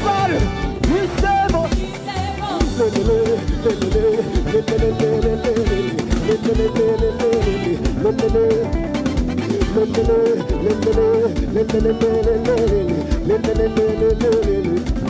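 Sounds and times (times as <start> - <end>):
bass: 0.0 - 15.0
guitar melody: 0.0 - 15.0
steady drum beat: 0.0 - 15.0.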